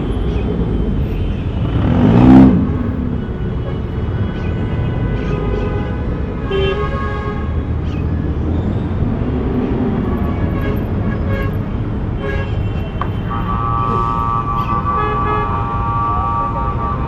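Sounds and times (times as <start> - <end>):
traffic rumble: 0.0 - 17.0
car horns tooting: 10.0 - 17.0.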